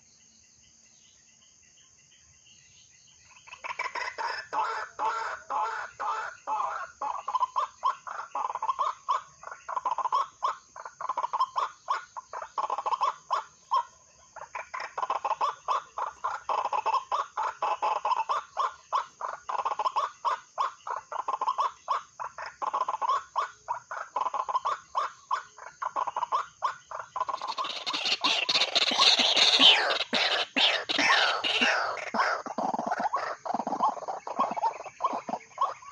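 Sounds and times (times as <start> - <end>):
bird calling repeated notes: 27.2 - 35.9.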